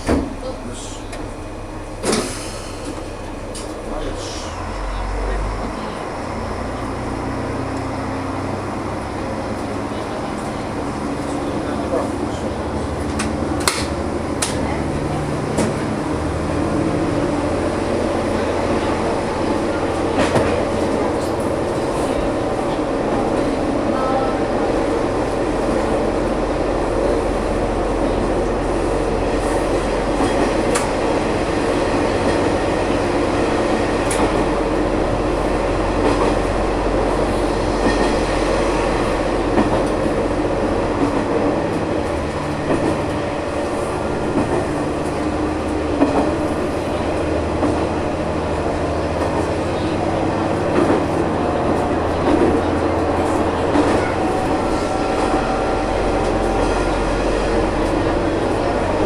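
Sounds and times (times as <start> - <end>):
diesel engine drone: 0.0 - 59.0
wheel-on-rail noise: 1.9 - 59.0.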